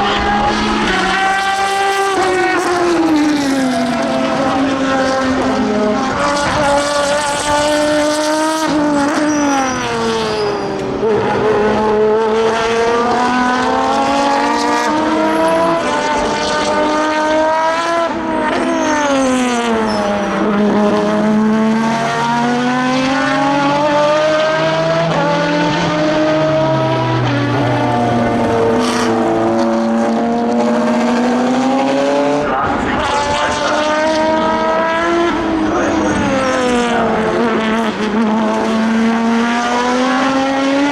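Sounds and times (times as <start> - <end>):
racing engine accelerating: 0.0 - 40.9.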